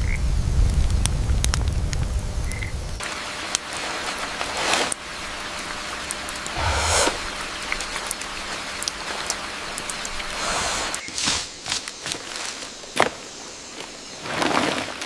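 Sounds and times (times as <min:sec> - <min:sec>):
rain falling on foliage: 0:00.0 - 0:06.5, 0:07.6 - 0:12.6
brief swishes: 0:06.6 - 0:07.3.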